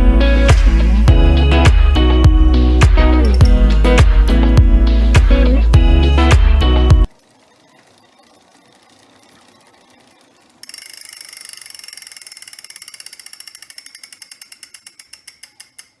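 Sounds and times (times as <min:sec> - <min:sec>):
faint trainer running: 0:00.0 - 0:16.0
freehub ratchet clicking: 0:07.1 - 0:16.0.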